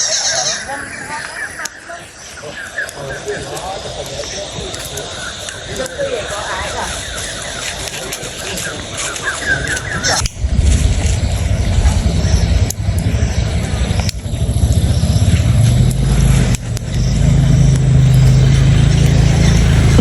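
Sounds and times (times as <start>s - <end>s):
engine low rumble: 10.4s - 20.0s.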